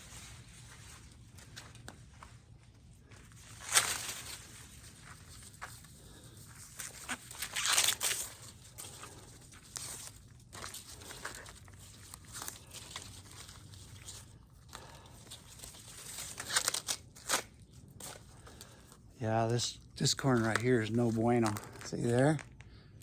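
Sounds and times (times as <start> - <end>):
corn stalks rustling: 3.1 - 18.6.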